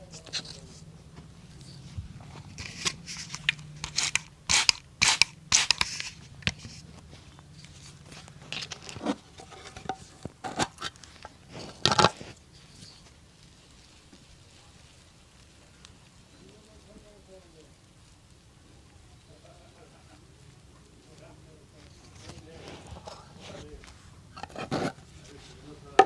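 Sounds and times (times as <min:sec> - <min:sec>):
hand tools scraping leather: 0:02.2 - 0:13.0, 0:21.9 - 0:26.0.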